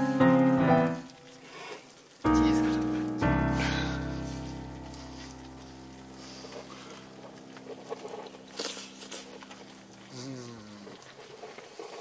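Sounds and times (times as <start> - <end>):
campfire crackling and popping: 0.0 - 12.0
low falling vocal sound: 10.1 - 11.0.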